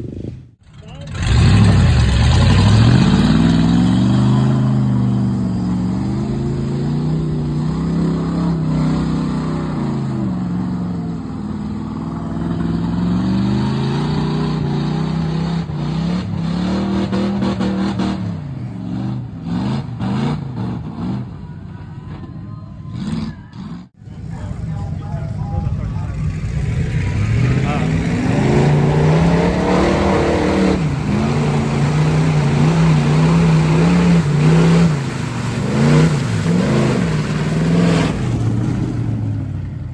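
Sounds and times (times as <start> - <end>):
truck engine revving: 0.0 - 21.7, 22.8 - 39.9
loud rushing noise: 25.4 - 39.4.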